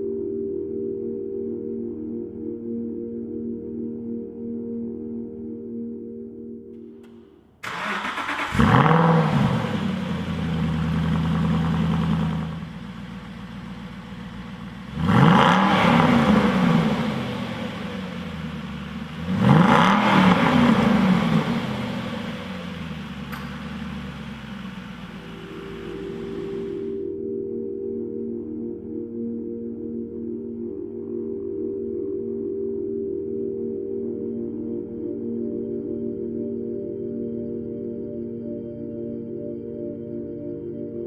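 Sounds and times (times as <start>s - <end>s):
car engine starting and revving: 7.0s - 27.0s.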